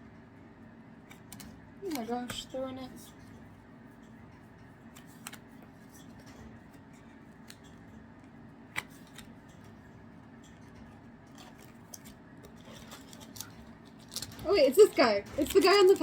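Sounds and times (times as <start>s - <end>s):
low steady hum: 0.0s - 16.0s
trading cards being flipped: 4.9s - 7.8s, 8.7s - 9.8s.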